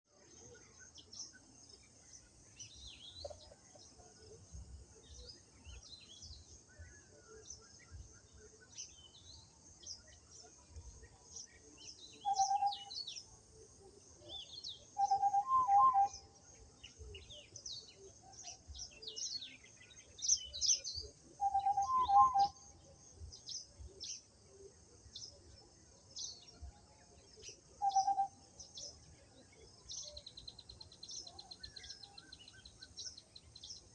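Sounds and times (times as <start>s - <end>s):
chorus of bird chirps and trills: 0.1s - 33.9s
lower-pitched bird call: 15.0s - 16.2s, 21.4s - 22.6s, 27.8s - 28.4s.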